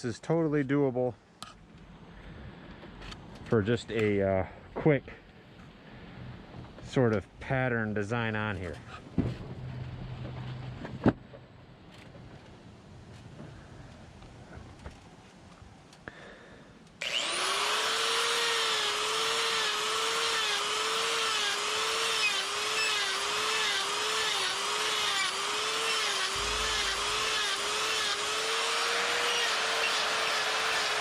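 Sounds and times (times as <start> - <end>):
die grinder whining: 17.0 - 31.0.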